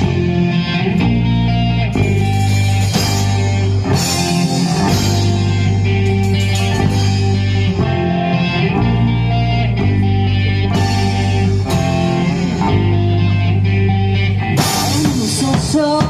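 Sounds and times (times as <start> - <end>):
bass: 0.0 - 16.0
electric guitars: 0.0 - 16.0
drum kit with crashing cymbals: 2.0 - 7.7.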